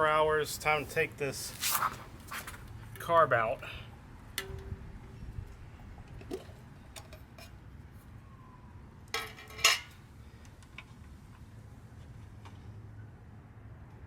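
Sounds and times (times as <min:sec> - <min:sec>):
light metal clicks and scrapes: 0:06.1 - 0:07.6.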